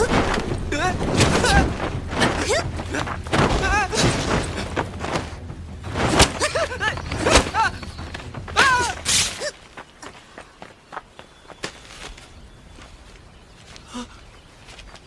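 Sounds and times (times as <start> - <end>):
thuds of blows: 0.0 - 9.4
scuffling with small knocks: 0.0 - 15.0
person crying out and grunting: 0.7 - 4.0, 8.6 - 9.5.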